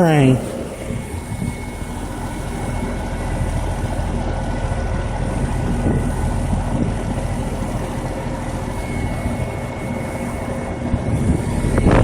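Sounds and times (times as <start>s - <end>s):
heat pump low hum: 0.0s - 12.0s.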